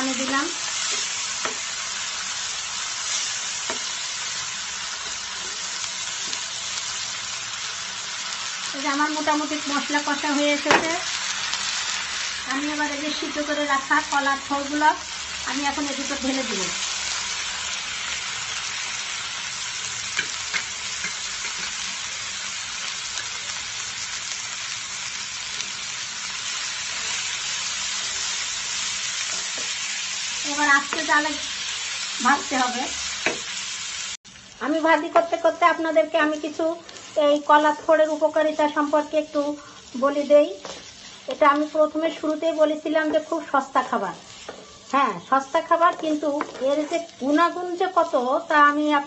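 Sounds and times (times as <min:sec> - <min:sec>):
masala sizzling in oil: 0:00.0 - 0:49.0
wooden spoon knocking on pan: 0:33.2 - 0:33.5, 0:46.3 - 0:46.6.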